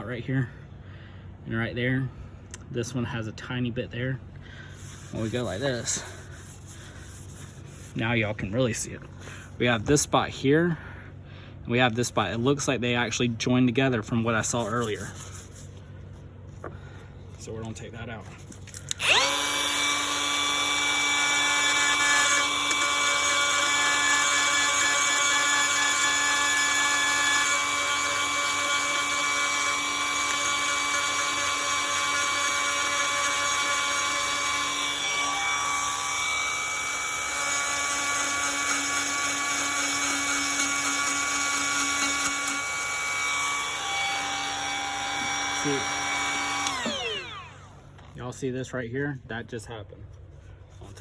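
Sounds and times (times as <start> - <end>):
rotary grinding tool whining: 4.7 - 8.0, 18.8 - 48.1.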